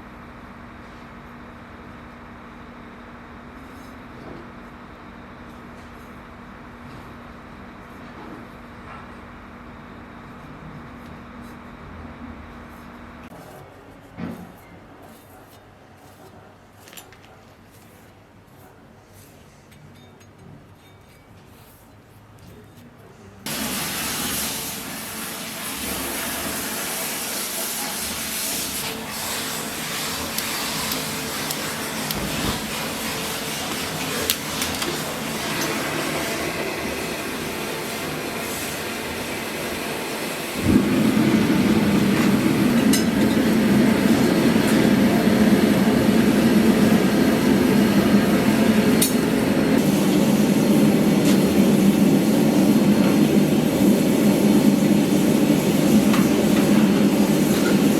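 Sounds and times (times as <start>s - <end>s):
workshop machine running: 0.0s - 19.6s, 23.1s - 57.9s
heavier machine running: 28.8s - 57.9s.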